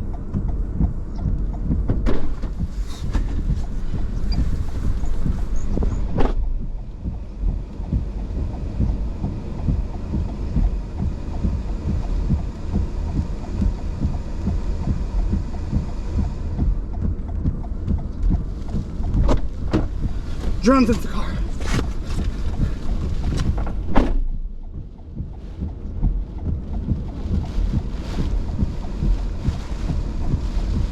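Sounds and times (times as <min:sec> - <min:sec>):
wind buffeting microphone: 0:00.0 - 0:20.6.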